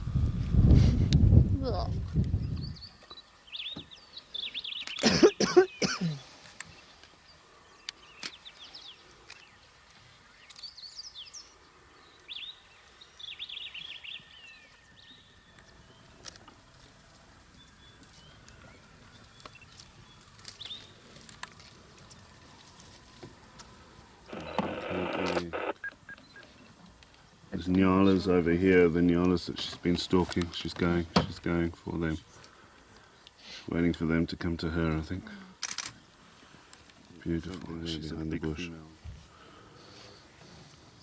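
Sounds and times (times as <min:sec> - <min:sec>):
birds chirping: 0:01.6 - 0:41.0
loud animal call: 0:24.3 - 0:25.8.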